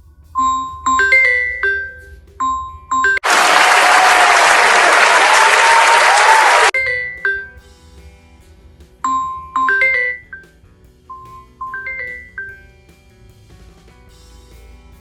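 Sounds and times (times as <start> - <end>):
bell-like chime melody: 0.4 - 3.2.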